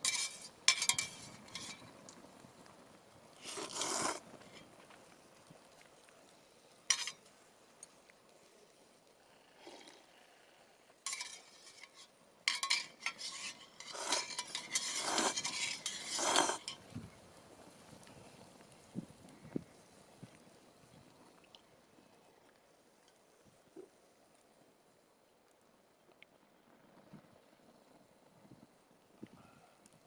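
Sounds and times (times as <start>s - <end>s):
utensils scraping metal tin: 0.0s - 1.9s, 3.4s - 4.2s, 6.9s - 7.2s, 11.1s - 16.8s.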